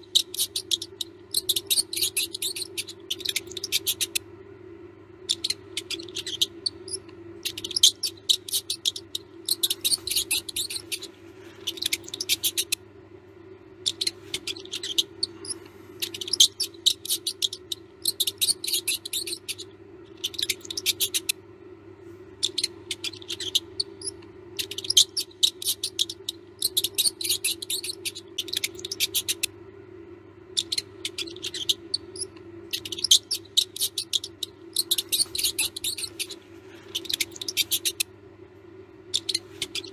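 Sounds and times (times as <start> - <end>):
mouse squeaking: 0.0 - 4.2, 5.2 - 12.8, 13.7 - 21.4, 22.4 - 29.6, 30.5 - 38.1, 39.0 - 39.9
steady low hum: 0.0 - 39.9.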